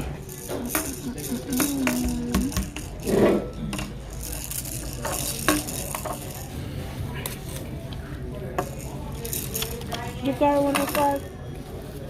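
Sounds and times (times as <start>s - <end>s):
clatter of things being handled: 0.0s - 6.6s, 8.6s - 11.2s.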